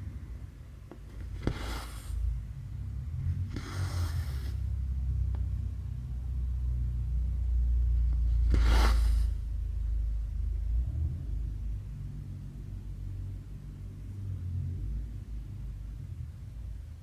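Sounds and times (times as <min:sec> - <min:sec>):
thread swishing through fabric: 0:01.1 - 0:02.3, 0:03.4 - 0:04.7, 0:08.3 - 0:09.4.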